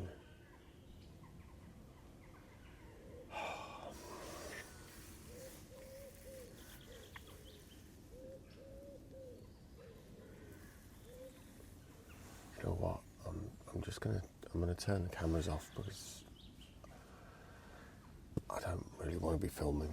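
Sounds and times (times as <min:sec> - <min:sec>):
pigeon cooing: 0:02.9 - 0:11.6.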